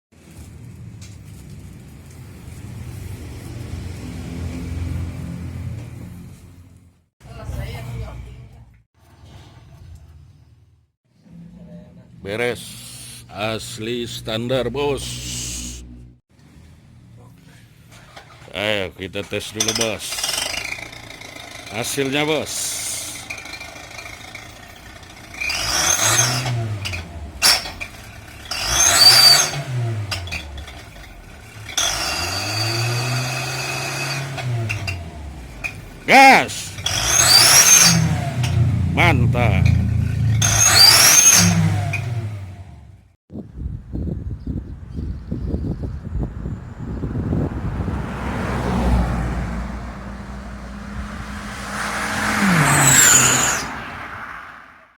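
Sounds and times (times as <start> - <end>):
car engine revving: 2.1 - 7.8, 12.6 - 43.1, 46.6 - 54.9
exhaust rushing: 12.2 - 16.2, 17.4 - 42.9, 46.4 - 54.9.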